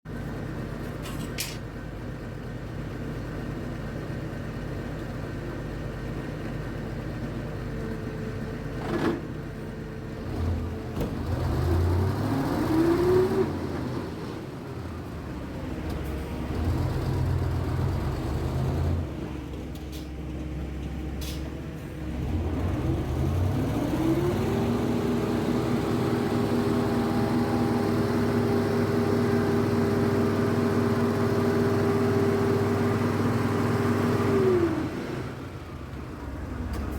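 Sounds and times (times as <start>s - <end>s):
diesel engine revving: 10.2s - 20.0s, 21.2s - 36.9s.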